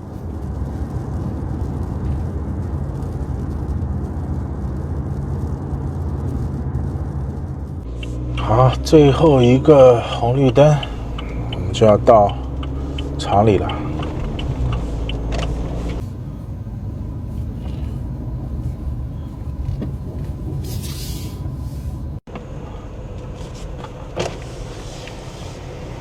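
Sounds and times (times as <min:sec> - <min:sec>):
car engine and road rumble: 0:00.0 - 0:26.0
brief hiss: 0:20.6 - 0:22.0.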